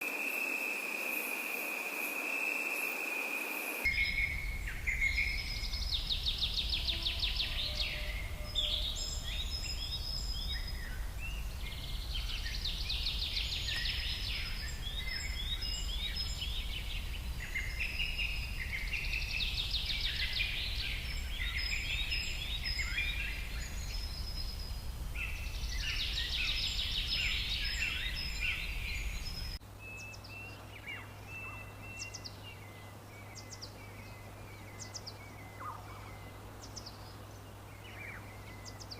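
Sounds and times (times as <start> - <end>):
birds singing trills and chirps: 0.0 - 38.9
steady high tone with hiss: 0.0 - 38.9
steady low rumble: 3.9 - 29.6.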